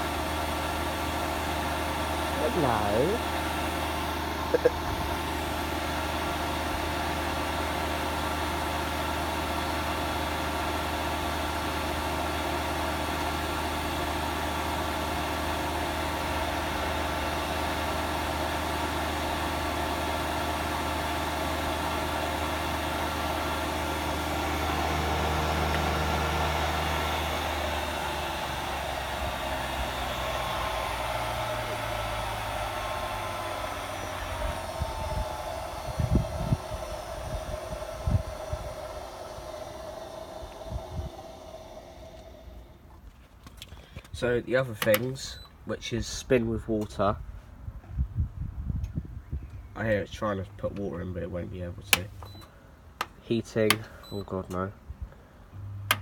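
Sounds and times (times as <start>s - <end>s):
washing machine drum spinning: 2.0s - 43.0s.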